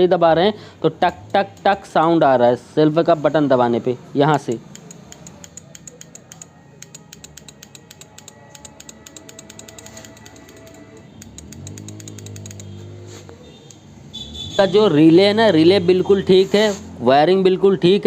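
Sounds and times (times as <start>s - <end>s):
electric starter clicking rapidly: 1.0s - 2.2s, 4.3s - 12.8s.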